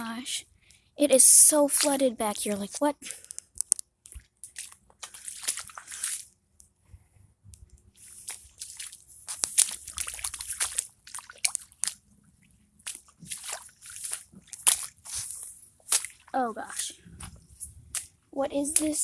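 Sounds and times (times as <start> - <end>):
footsteps squelching in wet ground: 1.6 - 3.3, 4.2 - 6.3, 8.0 - 19.0.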